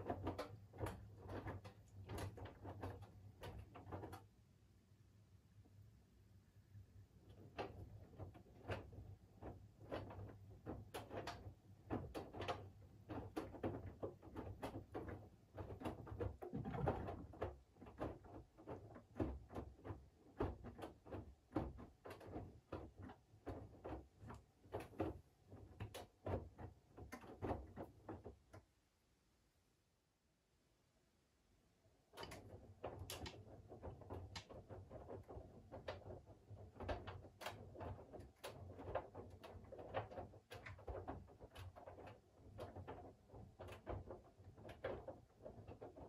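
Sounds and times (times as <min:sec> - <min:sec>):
laundry sloshing in washing machine: 0:07.3 - 0:28.4.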